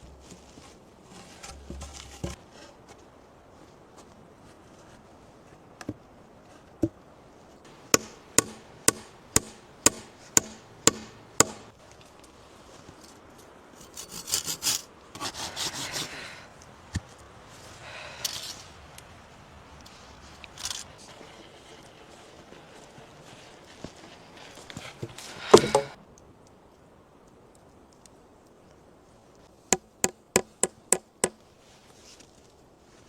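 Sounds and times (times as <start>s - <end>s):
rubbing and scraping on wood: 0.0s - 3.0s, 13.8s - 16.2s, 20.6s - 26.0s
tool knocking on wood: 25.5s - 26.0s.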